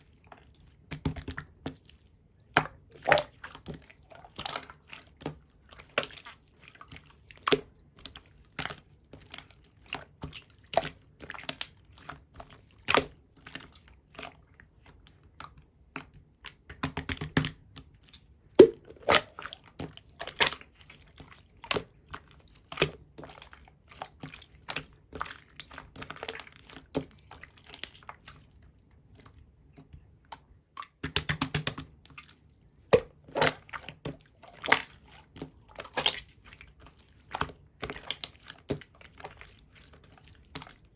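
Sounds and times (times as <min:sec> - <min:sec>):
wet popping bubbles: 0:02.6 - 0:03.4, 0:18.6 - 0:19.5, 0:32.9 - 0:33.9.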